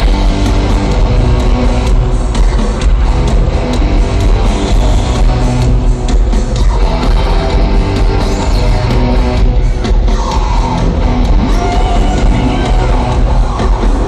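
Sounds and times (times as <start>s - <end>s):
live rock band playing: 0.0s - 14.0s
person singing: 10.1s - 14.0s.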